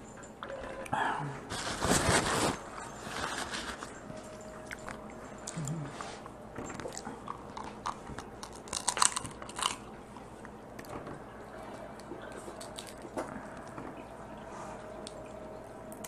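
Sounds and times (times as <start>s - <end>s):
crab shell crunching: 6.7s - 10.9s, 12.0s - 13.8s
chewing crab: 6.7s - 14.1s.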